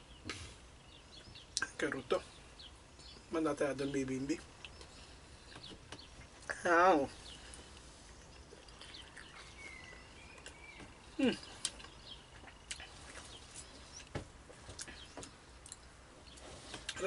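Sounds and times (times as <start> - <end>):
faint birds chirping: 0.0 - 17.0
quiet chewing with mouth clicks: 4.6 - 6.5, 7.3 - 17.0.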